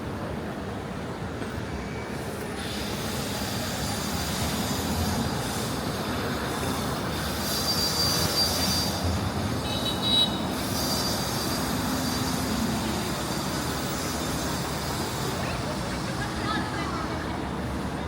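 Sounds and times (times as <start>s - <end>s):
city street traffic: 0.0s - 18.0s
high-pitched squeal: 4.6s - 15.4s.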